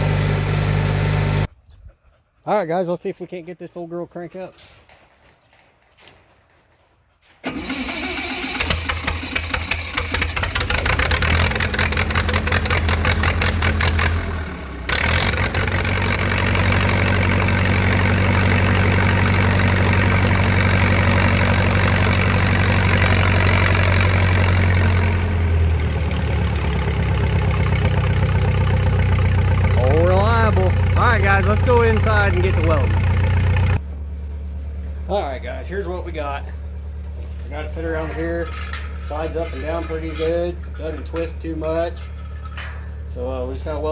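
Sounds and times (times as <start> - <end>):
old engine cranking and running: 0.0 - 1.5, 7.4 - 33.8, 37.2 - 43.1.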